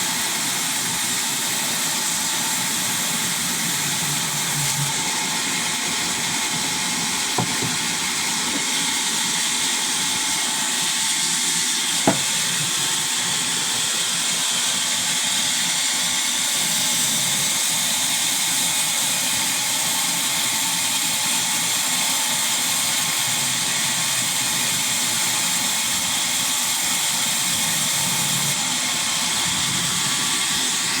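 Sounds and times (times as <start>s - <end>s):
sawmill machinery hissing: 0.0s - 31.0s
sharp knocks: 7.3s - 8.8s, 12.1s - 12.7s.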